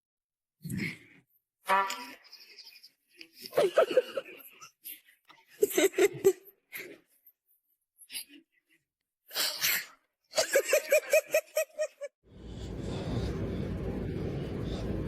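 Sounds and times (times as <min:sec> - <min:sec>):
steady background noise: 0:12.3 - 0:15.0.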